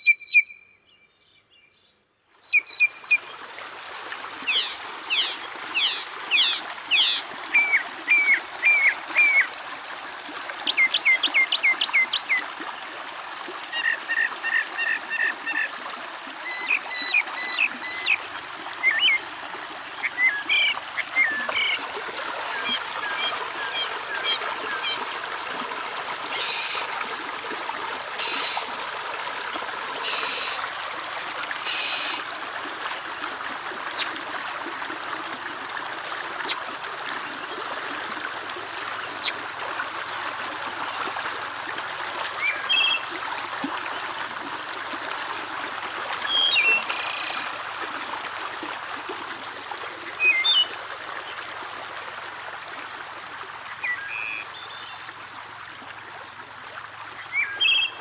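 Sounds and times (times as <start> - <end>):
water trickling: 2.6 - 58.0
harsh bird calls: 26.3 - 26.9, 28.2 - 28.7, 30.0 - 30.6, 31.6 - 32.2
short bird chirps: 28.2 - 28.7, 31.7 - 32.2.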